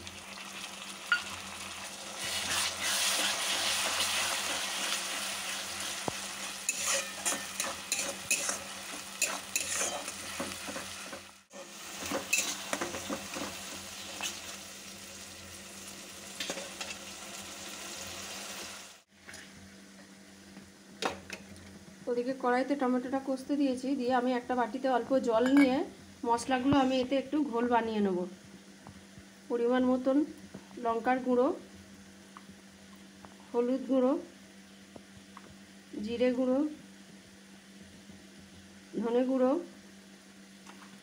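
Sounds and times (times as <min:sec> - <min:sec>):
tomato puree sizzling in oil: 0:00.0 - 0:19.2
steel spatula scraping frying pan: 0:02.2 - 0:05.3, 0:06.4 - 0:13.4.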